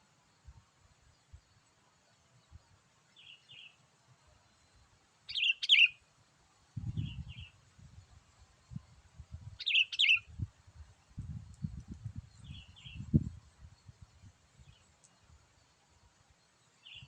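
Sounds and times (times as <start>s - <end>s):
bulbul calling: 5.3s - 6.0s, 9.6s - 10.3s.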